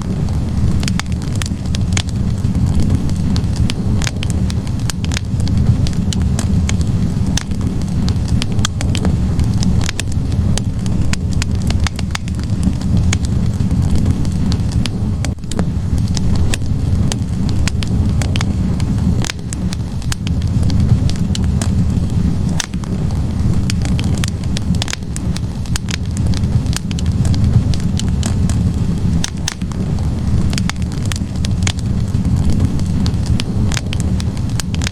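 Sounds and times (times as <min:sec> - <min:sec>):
fire crackling and popping: 0:00.0 - 0:34.9
low rumble of flames: 0:00.0 - 0:34.9.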